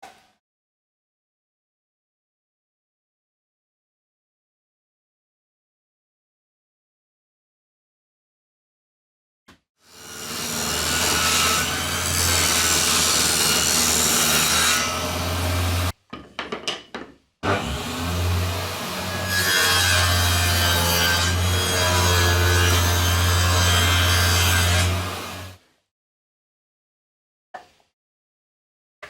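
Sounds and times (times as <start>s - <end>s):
power tool cutting plywood: 9.9s - 15.9s, 17.4s - 25.6s.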